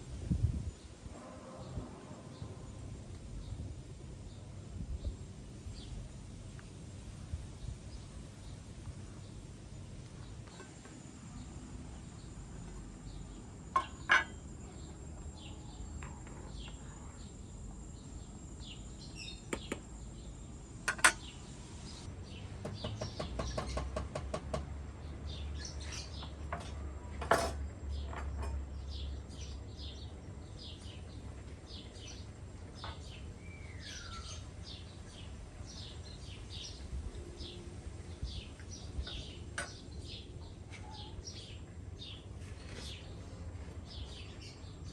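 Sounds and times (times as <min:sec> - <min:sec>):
small birds chirping: 0:07.5 - 0:24.1, 0:27.9 - 0:44.9
utensils and dishes clinking: 0:13.8 - 0:14.4.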